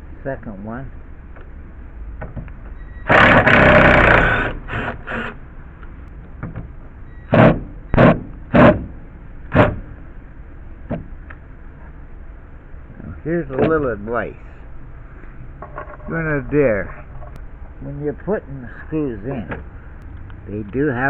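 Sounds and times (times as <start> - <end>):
cordless screw gun bursts: 3.1 - 5.4.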